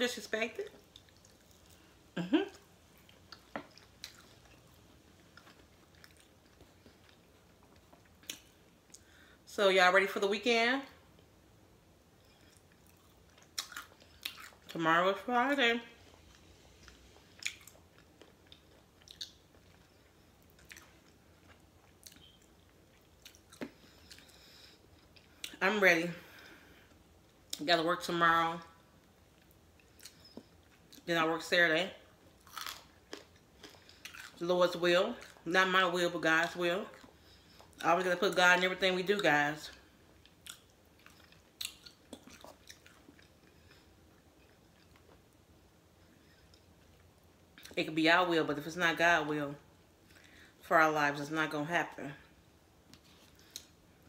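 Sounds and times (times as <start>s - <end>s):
chewing crispy food: 0.6s - 9.2s, 12.2s - 14.8s, 16.0s - 25.6s, 32.1s - 35.5s, 39.6s - 47.8s.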